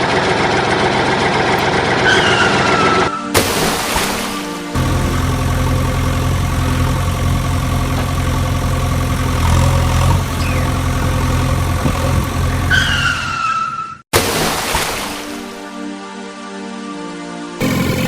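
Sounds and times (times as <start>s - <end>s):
engine running: 0.0s - 2.8s, 4.7s - 13.3s, 17.6s - 18.0s.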